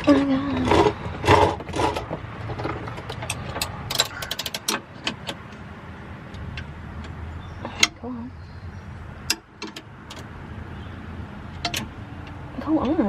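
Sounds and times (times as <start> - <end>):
socket ratchet clicking: 3.1 - 5.6.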